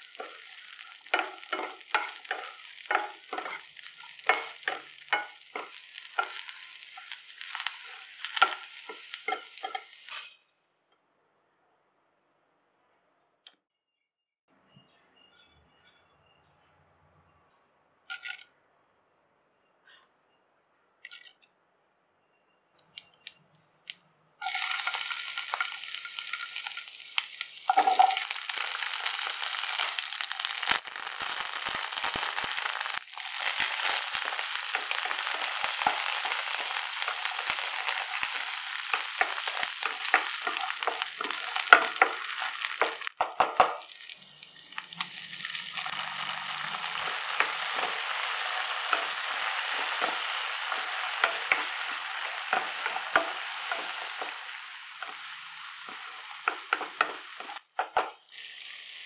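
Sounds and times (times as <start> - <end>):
spatula scraping a pan: 0.0 - 10.4, 45.0 - 58.1
loud sizzle of frying: 0.0 - 10.5, 24.4 - 59.0.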